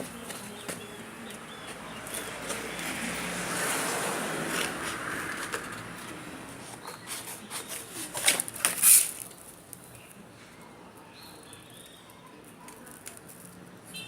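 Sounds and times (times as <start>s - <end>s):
paper rustling: 6.8s - 9.8s.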